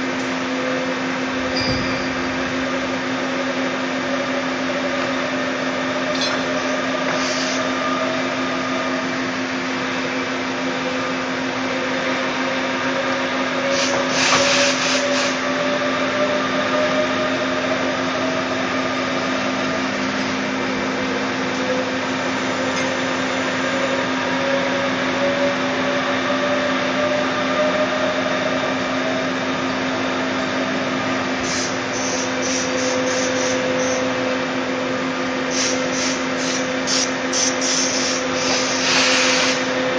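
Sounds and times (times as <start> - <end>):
lathe machine hum: 2.1 - 39.9
burst of hiss: 13.7 - 15.4, 35.5 - 39.8
whine rising in pitch: 14.6 - 35.1.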